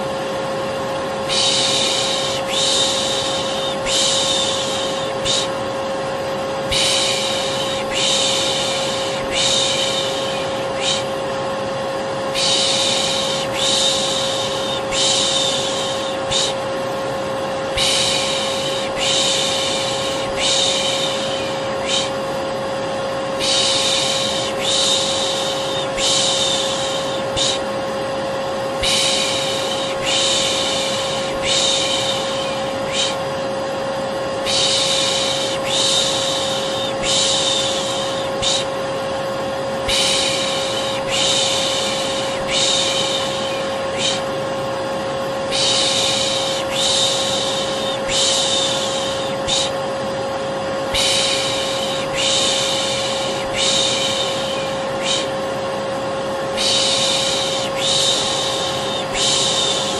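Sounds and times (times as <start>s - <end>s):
vacuum cleaner running: 0.0s - 59.9s
person shushing: 1.3s - 5.6s, 6.7s - 11.2s, 12.3s - 16.7s, 17.7s - 22.2s, 23.4s - 27.7s, 28.8s - 33.3s, 34.4s - 38.8s, 39.8s - 44.4s, 45.4s - 49.8s, 50.9s - 55.5s, 56.5s - 59.9s.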